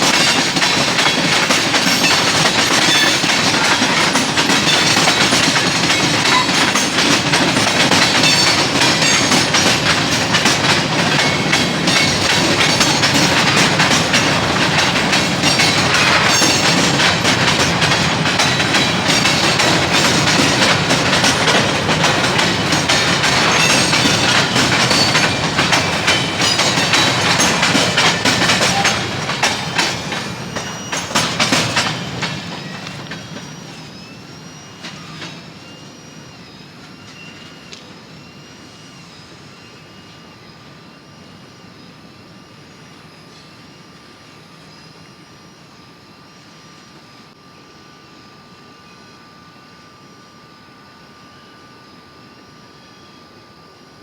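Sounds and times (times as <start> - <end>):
train wheels clattering over rail joints: 0.0 - 36.1.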